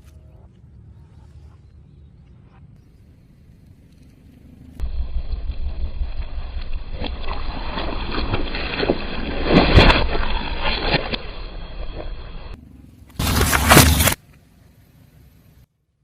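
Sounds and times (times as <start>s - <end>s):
tyre crushing crunchy objects: 7.0s - 12.2s, 13.1s - 14.2s.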